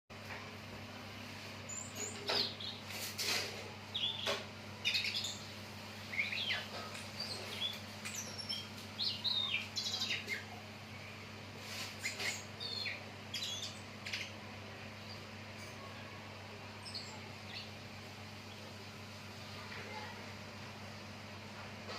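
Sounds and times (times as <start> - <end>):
low electrical hum: 0.1 - 21.9
songbird chirping: 3.9 - 14.4.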